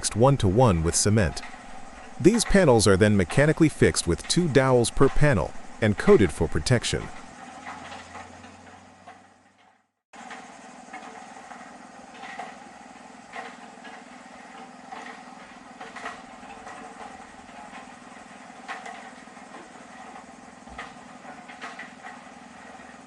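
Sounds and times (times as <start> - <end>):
steady mechanical hum: 0.0 - 23.0
sharp knocks and clicks: 13.3 - 23.0.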